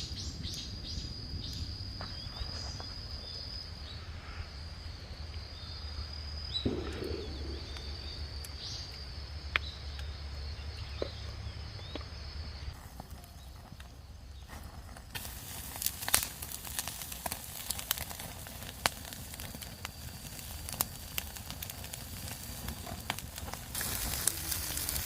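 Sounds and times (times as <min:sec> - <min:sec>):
high insect trill: 0:00.0 - 0:25.0
faint bird chirps: 0:05.5 - 0:13.7
sharp cracks: 0:06.6 - 0:11.1
low rumble: 0:06.7 - 0:09.8.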